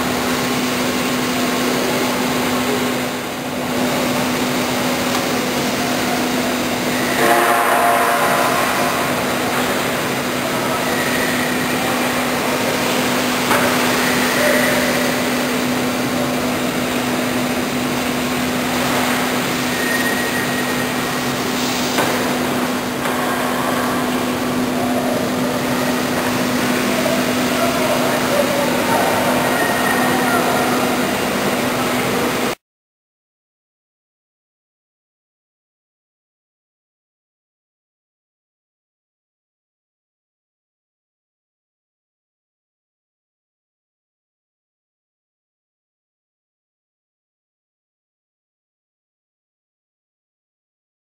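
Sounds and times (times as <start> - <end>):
industrial machinery running: 0.0 - 32.6.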